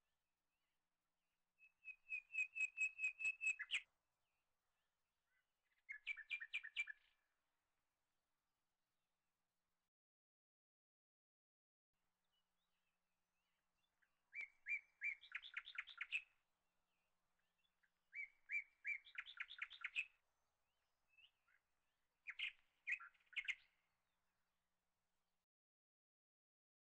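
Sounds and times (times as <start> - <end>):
songbird singing: 1.6 - 3.9, 5.3 - 7.2, 12.3 - 16.3, 16.9 - 20.2, 21.1 - 23.8.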